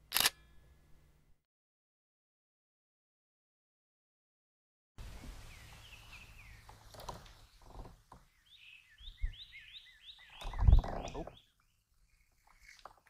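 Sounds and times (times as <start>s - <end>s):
birds chirping: 5.0s - 13.0s.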